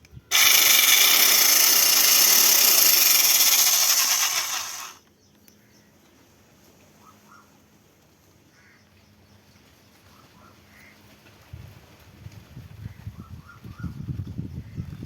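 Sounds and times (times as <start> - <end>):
electric chainsaw running: 0.3 - 5.0.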